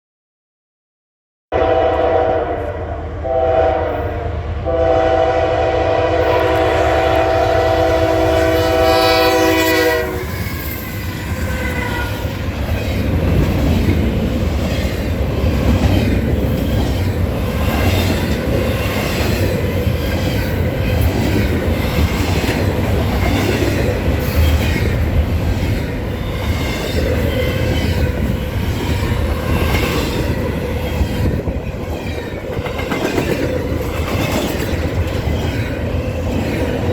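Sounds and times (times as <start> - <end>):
locomotive air horn blasts: 1.5 - 10.4
locomotive rumbling past: 1.6 - 36.9
train wheels clattering over rail joints: 12.6 - 36.9.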